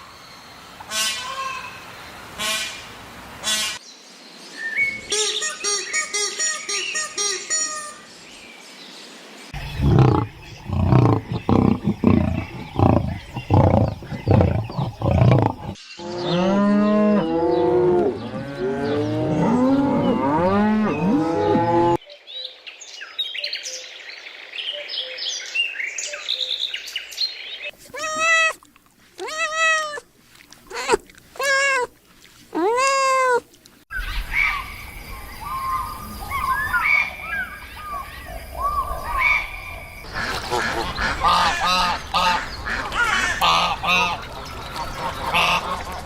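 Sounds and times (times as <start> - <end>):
loud low animal calls: 9.6 - 15.8
chorus of animals calling: 9.6 - 21.9
cat meowing: 27.9 - 28.6, 29.2 - 30.0, 30.7 - 31.9, 32.6 - 33.4.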